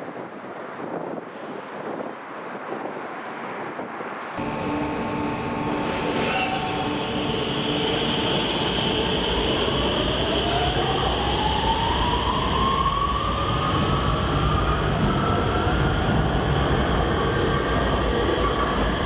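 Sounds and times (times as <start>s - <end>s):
steady rumble of train: 0.0s - 19.0s
traction motor whine: 4.4s - 19.0s.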